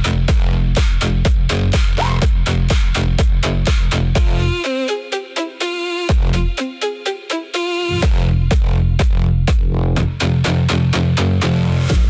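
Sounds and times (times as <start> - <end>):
deep falling bass hits: 0.0 - 4.4, 8.0 - 12.0
stepping synth melody: 4.2 - 9.5.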